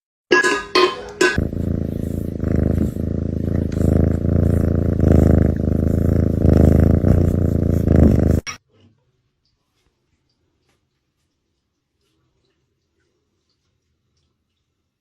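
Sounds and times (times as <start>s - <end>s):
cat purring: 1.2s - 8.5s.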